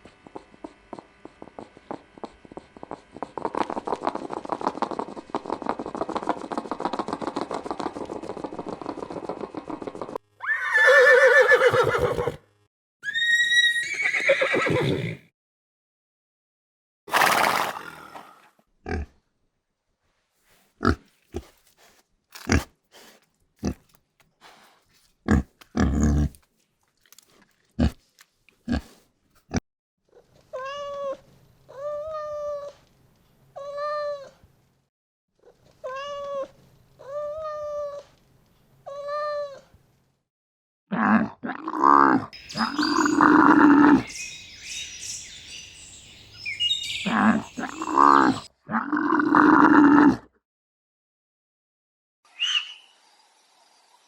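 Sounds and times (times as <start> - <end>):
rough animal calls: 42.4 - 50.0.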